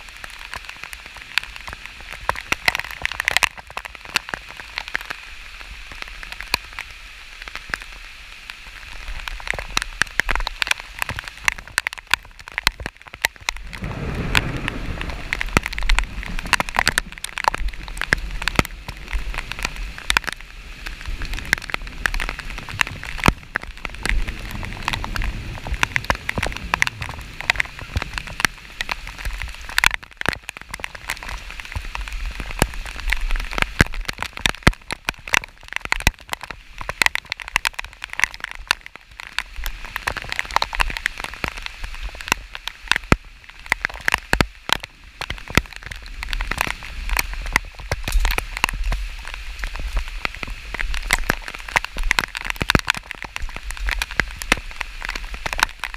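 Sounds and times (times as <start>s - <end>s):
rain drops ticking: 0.0s - 55.9s
rain hiss: 0.0s - 55.9s
low rumble: 13.5s - 20.1s.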